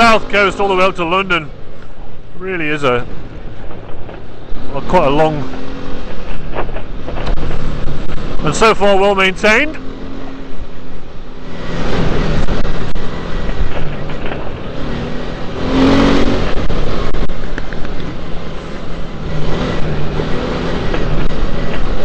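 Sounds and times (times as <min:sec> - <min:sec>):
dirt bike engine revving: 0:04.5 - 0:22.0
wind noise on microphone: 0:05.4 - 0:08.5, 0:10.1 - 0:22.0.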